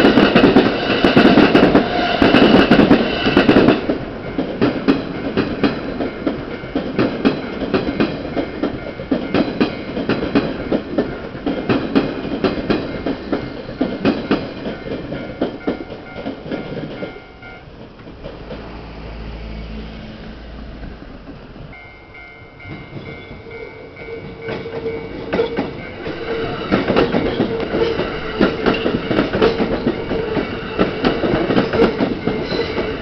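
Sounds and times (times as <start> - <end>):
train wheels clattering over joints: 0.0 - 18.8, 24.2 - 33.0
train low rumble: 0.0 - 33.0.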